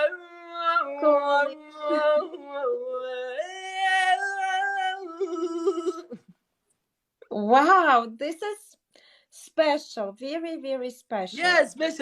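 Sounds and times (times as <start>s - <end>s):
person singing unaccompanied: 0.0s - 6.2s.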